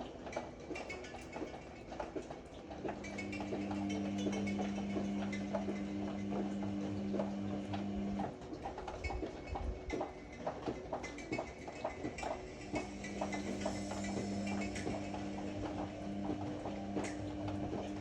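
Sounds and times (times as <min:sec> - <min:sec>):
washing machine motor humming: 0:02.5 - 0:09.6, 0:11.4 - 0:18.0.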